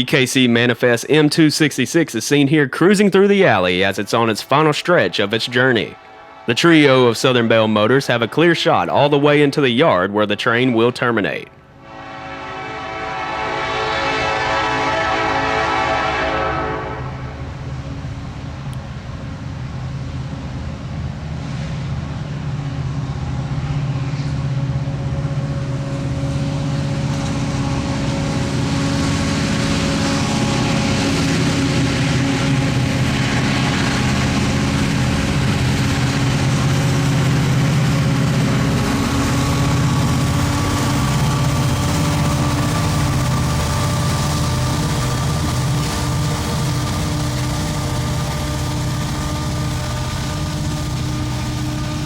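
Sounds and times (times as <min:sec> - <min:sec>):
locomotive engines droning: 0:00.0 - 0:52.0
train horn blast: 0:03.4 - 0:09.3, 0:11.7 - 0:17.8, 0:23.5 - 0:52.0.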